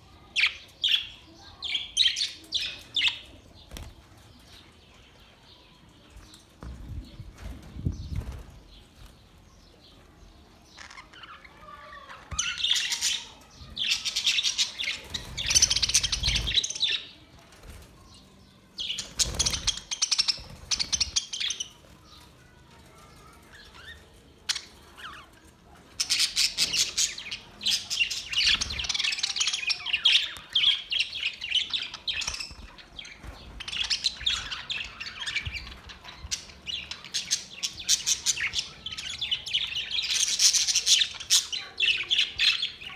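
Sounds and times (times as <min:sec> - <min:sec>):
budgerigars twittering: 0:10.7 - 0:17.0.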